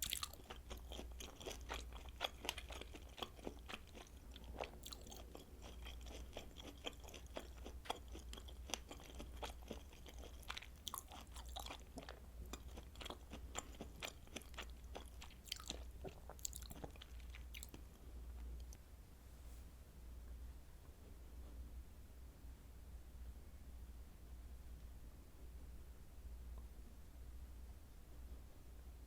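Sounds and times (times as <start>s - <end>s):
chewing with wet smacks: 0.0s - 18.0s
steady low hum: 0.0s - 29.0s.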